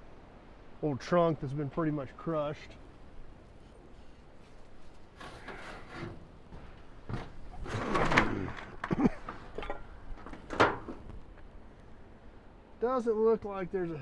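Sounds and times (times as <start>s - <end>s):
long board scrape: 5.1s - 6.3s
boards clattering underfoot: 5.1s - 11.5s.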